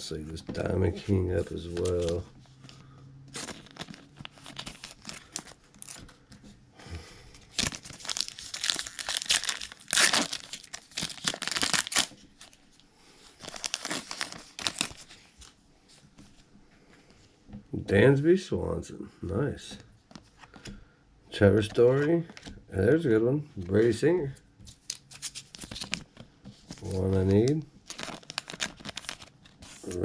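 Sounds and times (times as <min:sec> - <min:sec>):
plastic crinkling and rustling: 0:00.6 - 0:06.5, 0:07.4 - 0:16.5, 0:24.6 - 0:30.0.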